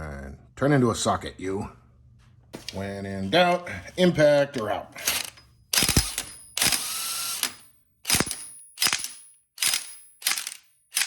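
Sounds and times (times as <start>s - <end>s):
impact wrench hammering: 5.0s - 11.0s.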